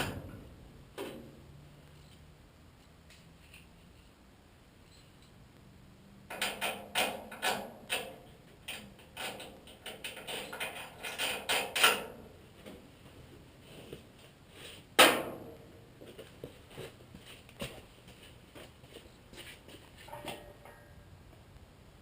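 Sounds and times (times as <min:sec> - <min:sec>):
mechanical clicks and clanks: 0:06.3 - 0:12.1.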